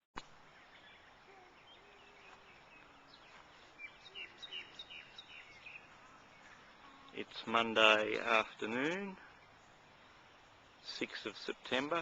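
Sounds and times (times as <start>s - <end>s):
faint steady hiss: 0.2s - 12.0s
birds chirping and calling: 0.4s - 12.0s.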